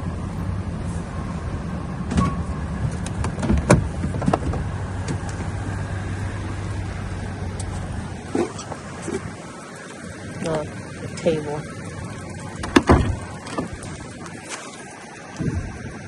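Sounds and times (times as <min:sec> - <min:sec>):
vehicle engine idling: 0:00.0 - 0:16.0
sharp clicks and knocks: 0:02.1 - 0:05.6, 0:12.6 - 0:13.9.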